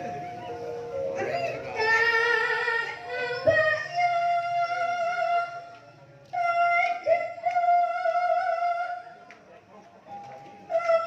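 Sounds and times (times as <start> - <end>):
gamelan music: 0.0 - 4.0.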